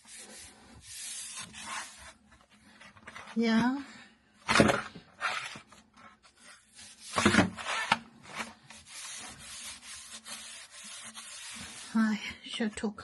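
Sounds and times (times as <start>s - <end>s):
scrubbing a pipe by hand: 0.0s - 2.2s, 8.4s - 12.2s.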